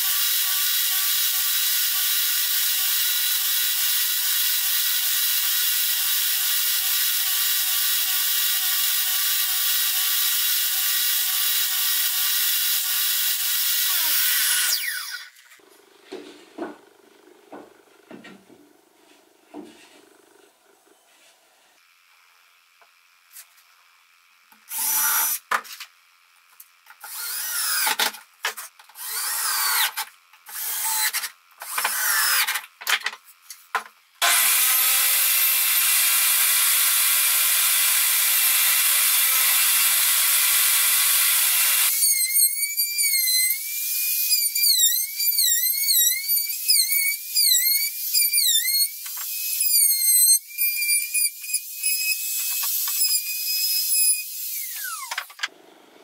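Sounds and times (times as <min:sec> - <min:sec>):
power tool bursts: 0:00.0 - 0:15.6, 0:27.0 - 0:28.1, 0:29.0 - 0:32.5, 0:34.2 - 0:55.7
router whining cutting wood: 0:00.0 - 0:15.8, 0:27.0 - 0:28.1, 0:29.0 - 0:32.5, 0:34.2 - 0:56.0
table saw cutting wood: 0:00.0 - 0:18.0, 0:24.6 - 0:25.6, 0:27.0 - 0:28.1, 0:28.9 - 0:32.6, 0:34.2 - 0:56.0.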